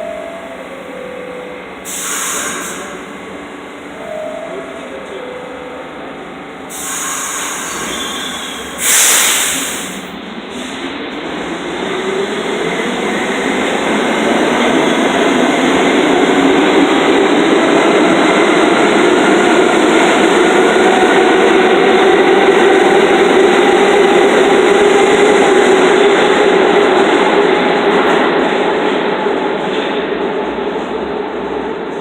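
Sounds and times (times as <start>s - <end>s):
subway train rumbling: 0.0s - 32.0s
loud hiss: 1.9s - 3.0s, 6.7s - 10.1s.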